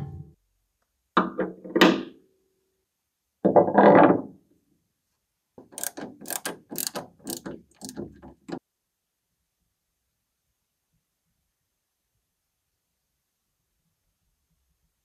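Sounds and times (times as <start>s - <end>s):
sharp mechanical clicks: 5.7s - 8.6s.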